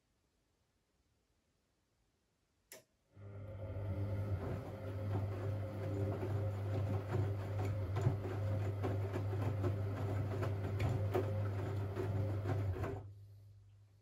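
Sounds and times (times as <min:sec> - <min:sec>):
washing machine motor hum: 0:03.2 - 0:13.1.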